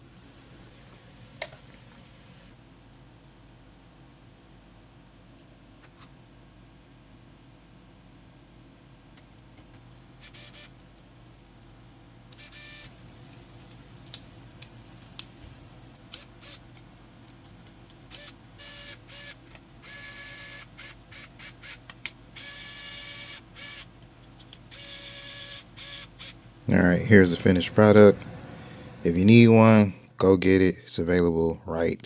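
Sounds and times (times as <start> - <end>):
stepper motors whining: 24.7 - 30.1.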